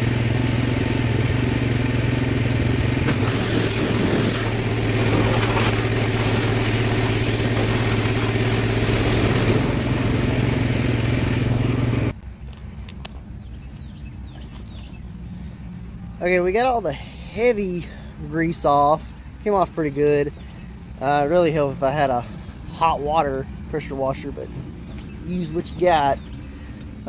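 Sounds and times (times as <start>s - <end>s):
pressure washer spray hissing: 3.0s - 12.0s.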